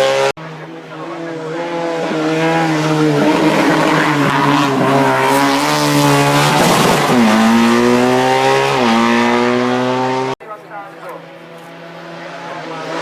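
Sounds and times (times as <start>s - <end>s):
racing car engine at high revs: 0.0s - 10.4s, 11.1s - 13.0s.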